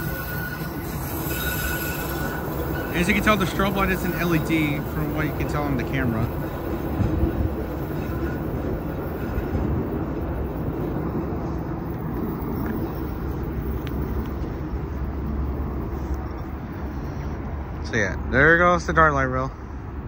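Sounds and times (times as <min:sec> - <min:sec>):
light rail train rumbling past: 0:00.0 - 0:20.0.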